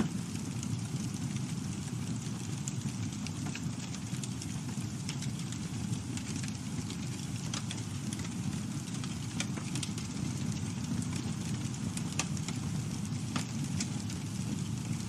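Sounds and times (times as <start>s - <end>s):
campfire flames rumbling: 0.0s - 15.0s
wood crackling and popping: 0.0s - 15.0s.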